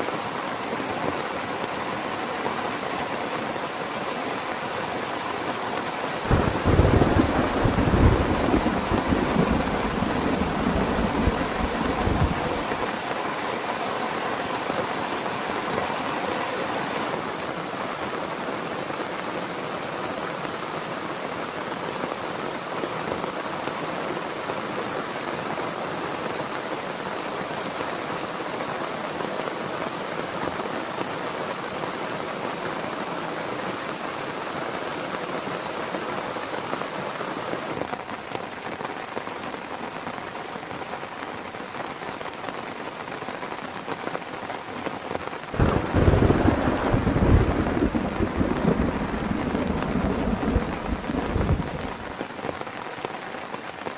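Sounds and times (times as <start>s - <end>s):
heavy rain falling: 0.0s - 53.9s
thunder rolling: 6.3s - 12.8s, 45.6s - 52.1s.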